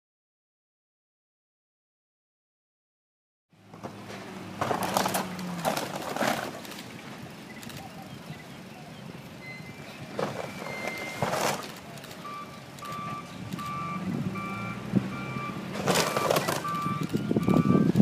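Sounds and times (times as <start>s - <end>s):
diesel engine: 3.5s - 18.0s
debris crashing and crunching: 4.6s - 6.9s, 10.2s - 11.8s, 15.8s - 16.7s
reversing alarm beeping: 9.4s - 18.0s.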